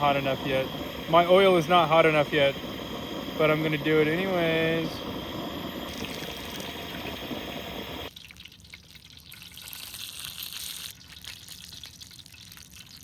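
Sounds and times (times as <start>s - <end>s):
rushing hiss: 0.0s - 8.1s
food crackling in frying oil: 0.0s - 13.0s.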